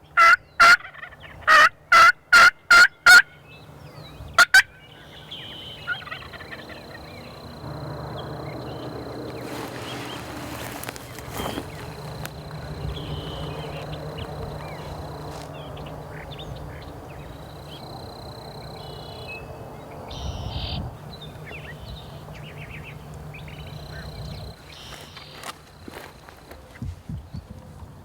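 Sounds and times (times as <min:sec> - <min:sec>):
small birds chirping: 0:03.3 - 0:27.5
low rumble: 0:05.7 - 0:24.6.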